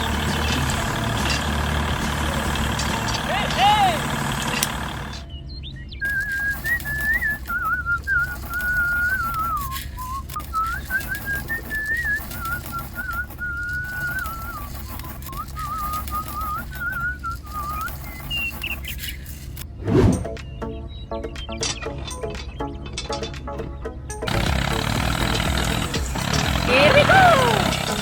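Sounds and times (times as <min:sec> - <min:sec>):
low machine hum: 0:00.0 - 0:20.6
person whistling a tune: 0:06.0 - 0:18.8, 0:26.7 - 0:28.0.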